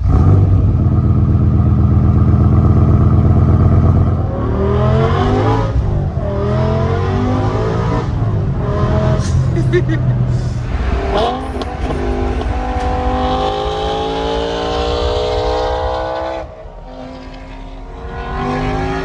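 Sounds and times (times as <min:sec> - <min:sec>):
car engine revving: 0:00.0 - 0:19.0
car engine idling: 0:09.4 - 0:19.0.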